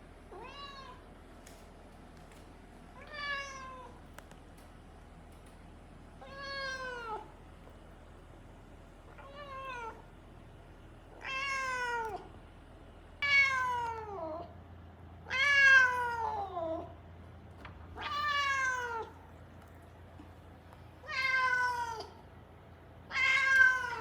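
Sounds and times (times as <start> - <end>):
cat meowing: 0.3 - 1.0, 3.0 - 4.0, 6.2 - 7.3, 9.1 - 10.0, 11.2 - 12.3, 13.2 - 14.5, 15.3 - 16.9, 18.0 - 19.2, 21.0 - 22.2, 23.1 - 24.0.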